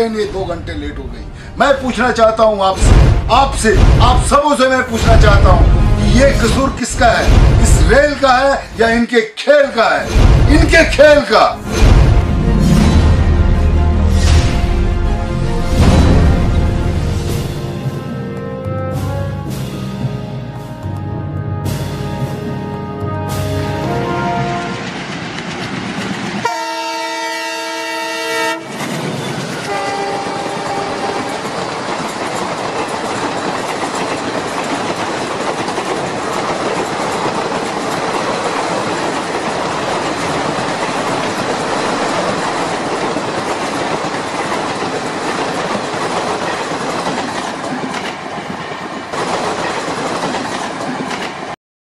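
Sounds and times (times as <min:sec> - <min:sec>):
train rushing along track: 0:00.0 - 0:51.6
train horn blast: 0:17.6 - 0:25.0, 0:26.4 - 0:28.7, 0:29.7 - 0:31.4.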